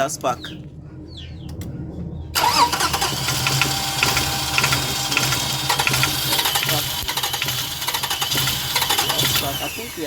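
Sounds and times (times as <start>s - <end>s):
starter motor cranking engine: 2.4s - 10.0s.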